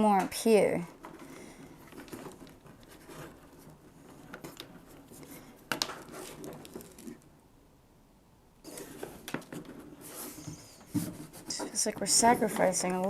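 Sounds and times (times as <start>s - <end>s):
bungee cord rustling: 0.9s - 7.3s.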